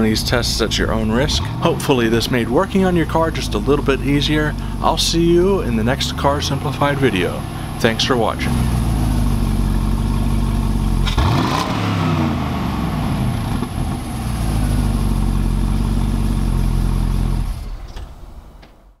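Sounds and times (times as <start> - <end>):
car engine idling and revving: 0.0 - 18.6.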